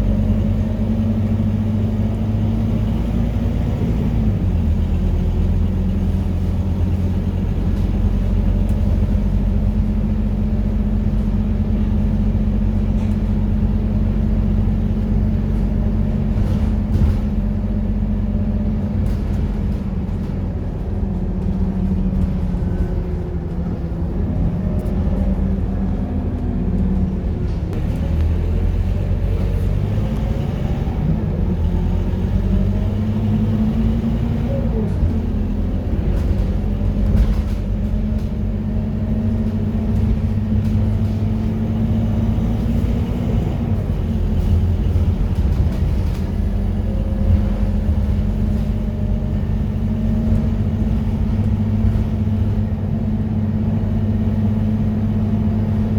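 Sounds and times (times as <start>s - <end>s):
bus diesel engine droning: 0.0s - 55.9s.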